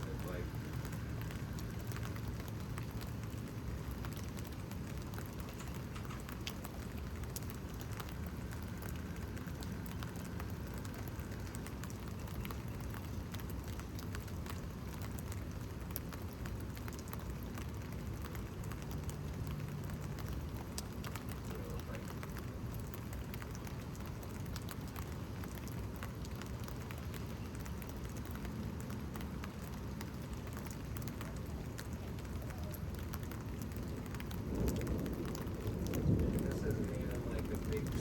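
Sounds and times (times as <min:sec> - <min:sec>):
rain falling: 0:00.0 - 0:38.0
raindrops ticking: 0:00.0 - 0:38.0.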